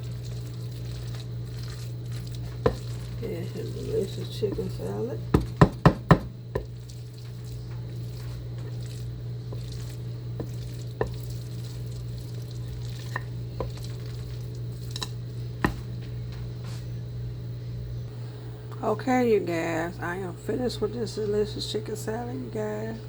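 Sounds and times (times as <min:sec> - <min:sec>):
steady low hum: 0:00.0 - 0:23.0
spoon knocking against bowl: 0:03.8 - 0:06.8.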